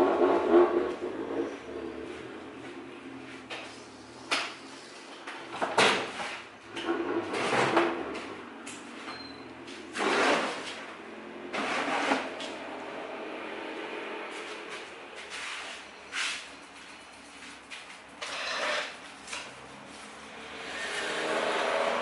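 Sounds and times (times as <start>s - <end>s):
scraping and knocking: 11.5s - 12.6s, 18.2s - 19.5s.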